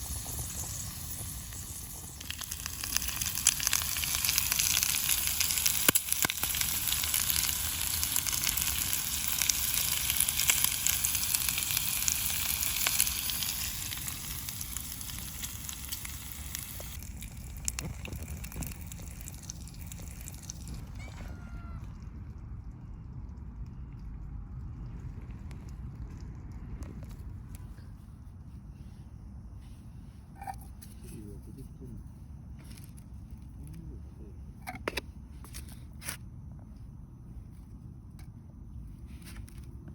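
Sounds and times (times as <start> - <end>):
campfire sizzling and crackling: 0.0 - 21.8, 32.6 - 33.8.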